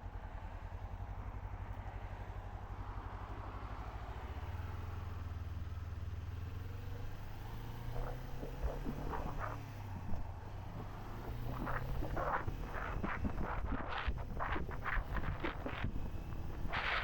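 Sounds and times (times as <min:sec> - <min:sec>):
motorcycle engine running: 0:04.7 - 0:17.0.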